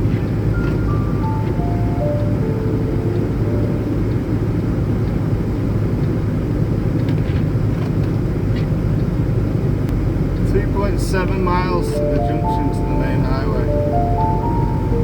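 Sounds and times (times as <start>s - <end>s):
truck engine and road noise: 0.0s - 15.0s
short descending tones: 0.6s - 5.4s, 11.5s - 15.0s.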